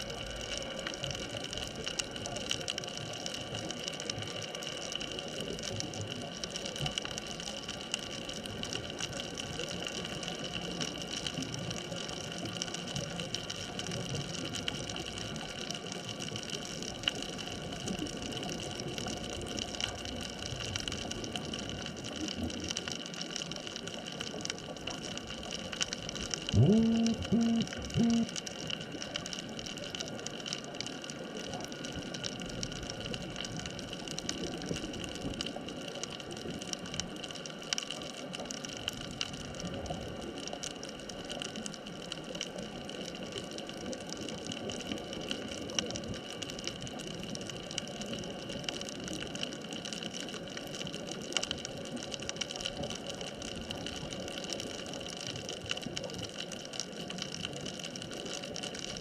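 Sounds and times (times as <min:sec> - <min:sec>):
faint crackles: 0:00.0 - 0:59.0
faint steady tones: 0:26.5 - 0:28.8.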